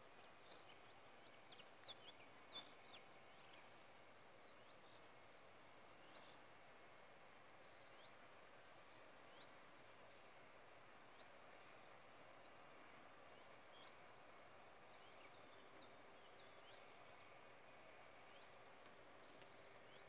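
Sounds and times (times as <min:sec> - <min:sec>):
faint birdsong chirps: 0:00.0 - 0:20.0
faint hiss: 0:00.0 - 0:20.0
small clicks: 0:18.8 - 0:20.0.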